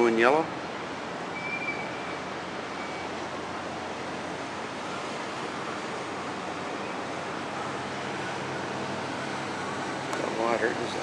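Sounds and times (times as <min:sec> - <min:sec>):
sea rushing: 0:00.0 - 0:11.0
wind: 0:00.0 - 0:11.0.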